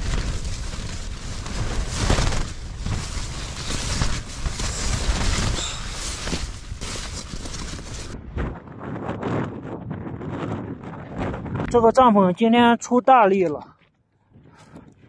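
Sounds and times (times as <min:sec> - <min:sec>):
tent fabric flapping: 0:00.0 - 0:11.7
strong gusty wind on microphone: 0:00.0 - 0:12.1.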